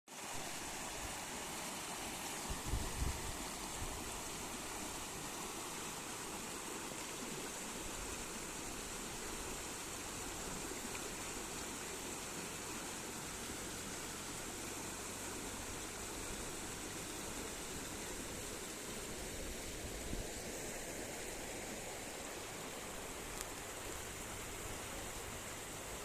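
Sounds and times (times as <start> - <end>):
river rushing: 0.1 - 26.0.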